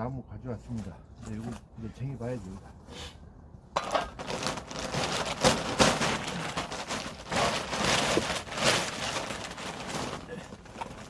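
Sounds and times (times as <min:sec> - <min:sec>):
firewood rustling and clattering: 0:03.7 - 0:11.0.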